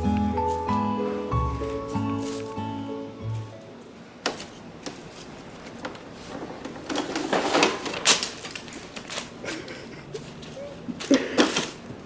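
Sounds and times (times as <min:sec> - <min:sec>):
plastic toys rattling and knocking: 0:04.3 - 0:09.8, 0:11.0 - 0:11.9.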